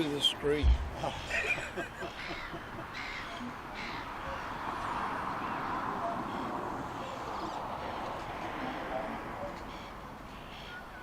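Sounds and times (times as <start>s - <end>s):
bird harsh calls: 0.6s - 4.3s, 9.7s - 11.0s.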